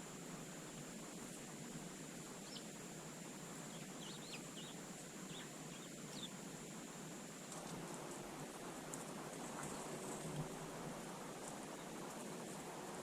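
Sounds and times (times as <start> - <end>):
steady hiss: 0.0 - 13.0
songbirds chirping: 0.6 - 7.5.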